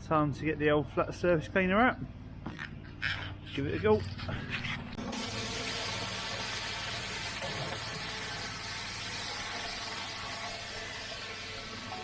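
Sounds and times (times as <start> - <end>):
pressure washer spraying water: 5.0 - 12.0.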